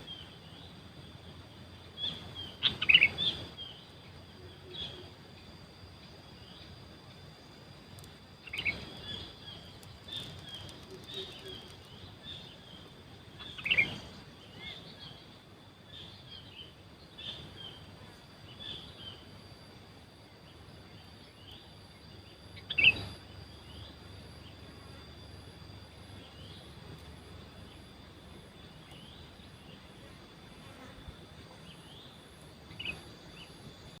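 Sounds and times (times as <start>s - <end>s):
high-pitched insect drone: 0.0s - 34.0s.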